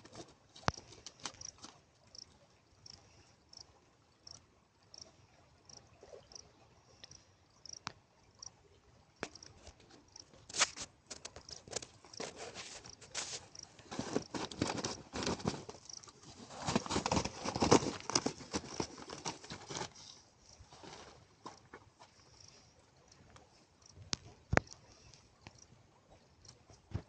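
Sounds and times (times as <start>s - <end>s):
irregular crackles and rustles: 0.0s - 2.2s, 9.2s - 22.7s.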